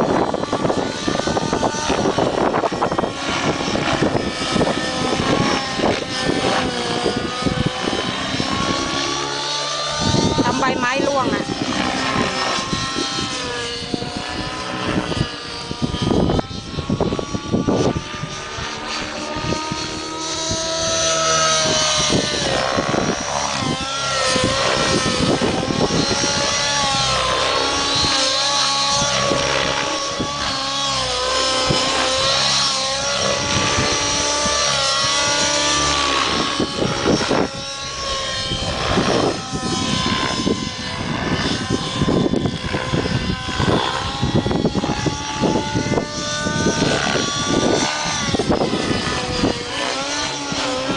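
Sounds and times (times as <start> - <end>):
model helicopter engine whine: 0.0 - 50.9.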